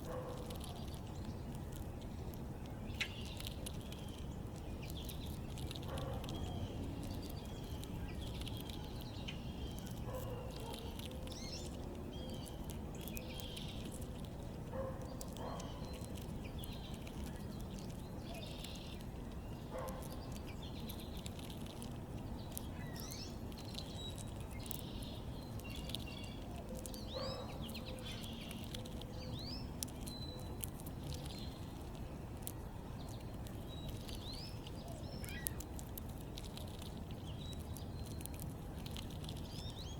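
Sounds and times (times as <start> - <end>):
low background rumble: 0.0 - 39.9
birds chirping and calling: 14.8 - 21.5, 22.3 - 31.8, 33.0 - 35.6.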